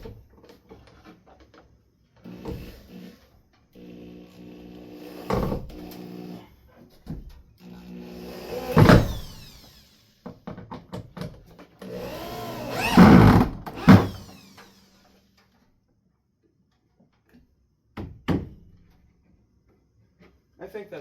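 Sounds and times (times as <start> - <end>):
power drill motor whining: 2.2 - 6.4, 7.6 - 10.3, 11.8 - 15.3.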